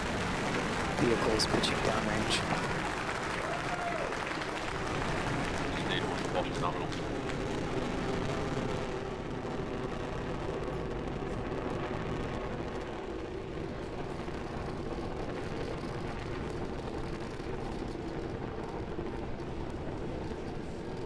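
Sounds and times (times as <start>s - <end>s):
rocket engines rumbling: 0.0s - 21.0s.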